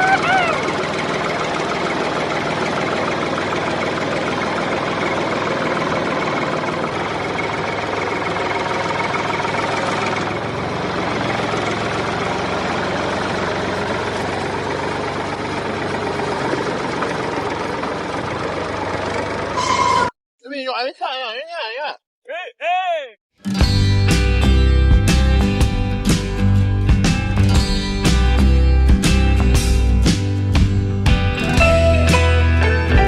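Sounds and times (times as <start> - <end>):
mini tractor engine running: 0.0 - 19.9.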